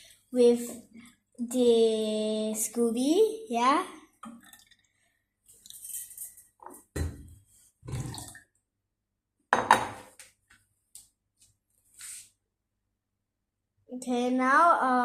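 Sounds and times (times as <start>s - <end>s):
liquid splashing: 4.2s - 6.4s.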